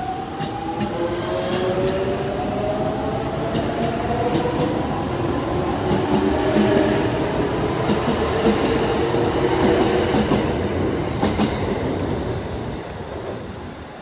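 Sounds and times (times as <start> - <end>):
train hum and rumble: 0.0 - 14.0
train wheels clicking over rail joints: 7.8 - 8.8, 11.2 - 11.7.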